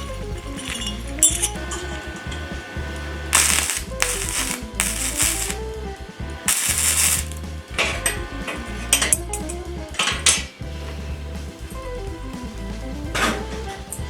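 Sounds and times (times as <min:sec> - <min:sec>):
background music: 0:00.0 - 0:14.0
steel pieces clanking: 0:00.6 - 0:01.9, 0:03.3 - 0:05.6, 0:06.5 - 0:09.2
short scraping hiss: 0:03.3 - 0:05.6.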